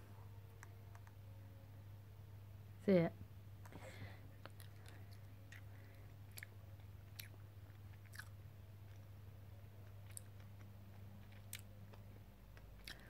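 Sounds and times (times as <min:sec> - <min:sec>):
low steady hum: 0:00.0 - 0:13.0
faint chewing: 0:00.5 - 0:01.2, 0:03.6 - 0:13.0.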